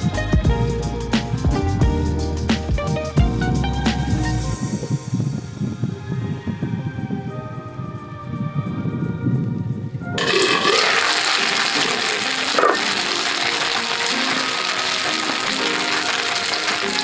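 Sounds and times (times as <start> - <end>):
soft background music: 0.0 - 17.0
dumplings sizzling in a frying pan: 10.2 - 17.0.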